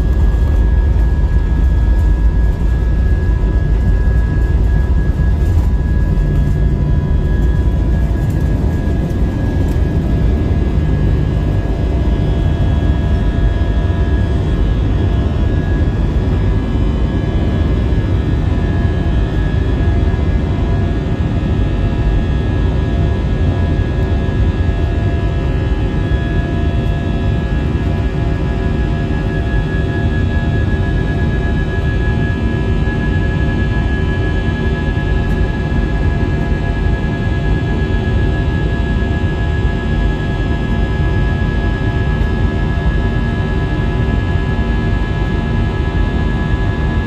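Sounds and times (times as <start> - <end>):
jet engines rumbling and whining: 0.0 - 47.0.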